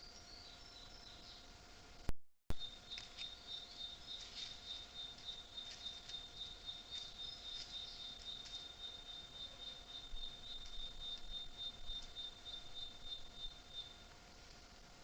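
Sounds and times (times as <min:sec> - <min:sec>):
high-pitched insect trill: 0:02.6 - 0:14.0.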